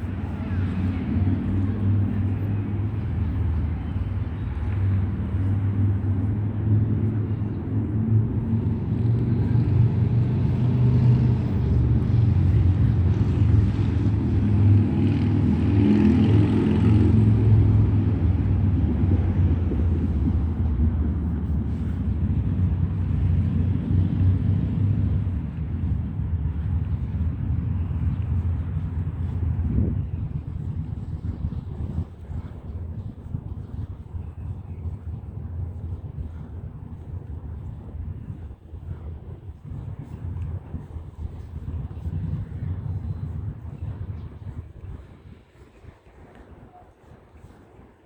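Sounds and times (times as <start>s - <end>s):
vehicle passing: 0.0s - 38.0s
road traffic rumble: 0.0s - 48.0s.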